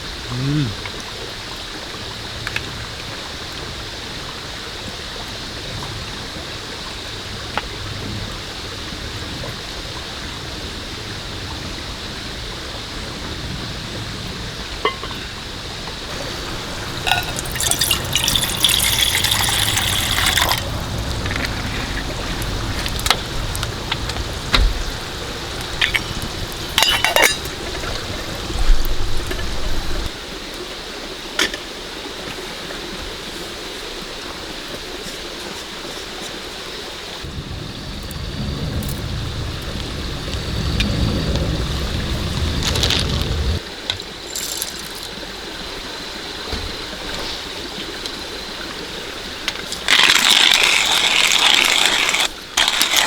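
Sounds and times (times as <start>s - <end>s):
rain hiss: 0.0s - 53.0s
knocks and clinks: 16.1s - 20.7s, 26.8s - 27.5s, 44.3s - 45.1s
liquid pouring: 16.1s - 29.4s, 44.2s - 45.2s, 49.6s - 53.0s.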